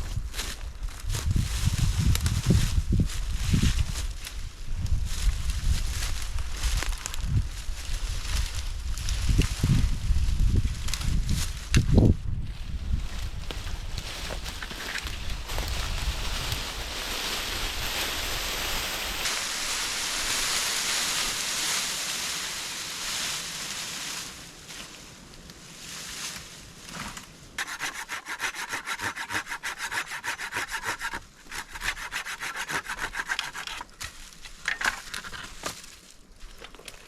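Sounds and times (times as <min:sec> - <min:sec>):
steady rushing hiss: 0:14.9 - 0:23.8
hand saw cutting wood: 0:27.6 - 0:35.5.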